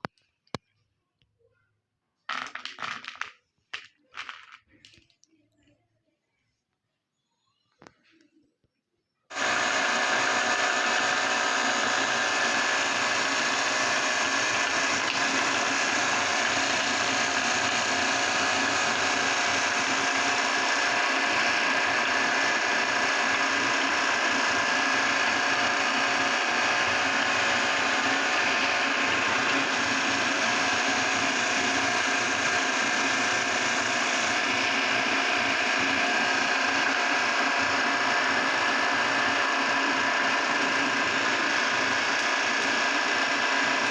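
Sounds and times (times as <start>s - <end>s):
electric meat grinder running: 9.3s - 43.9s.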